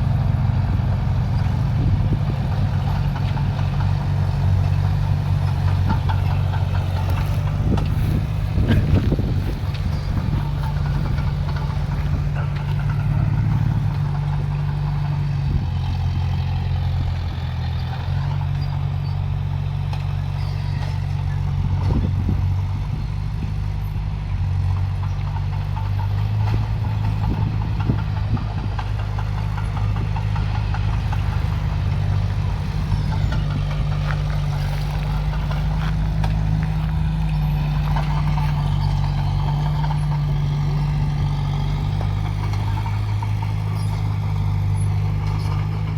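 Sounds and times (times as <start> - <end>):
heavy diesel engines running: 0.0 - 45.9
metallic clanks: 2.6 - 17.1.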